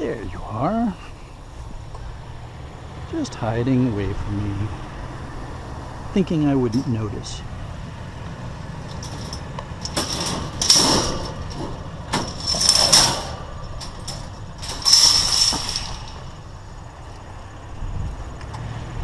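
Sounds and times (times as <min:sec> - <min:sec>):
metal clicks and knocks: 0:08.8 - 0:16.5
scrap metal scraping and ringing: 0:08.8 - 0:16.5.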